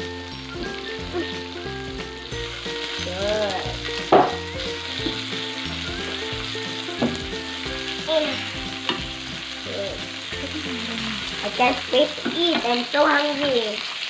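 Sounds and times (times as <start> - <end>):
chicken sizzling in fat: 0.0 - 14.0
metal spatula knocking on pan: 4.1 - 4.4, 7.0 - 7.3, 8.8 - 9.1, 12.2 - 12.7.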